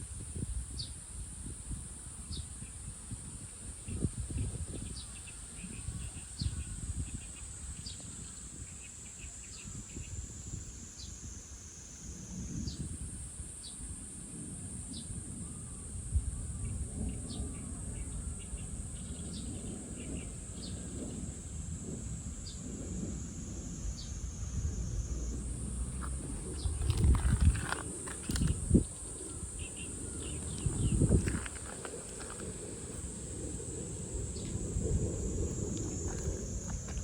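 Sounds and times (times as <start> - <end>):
high-pitched insect drone: 14.8 - 37.0
low rumbling noise: 21.8 - 37.0.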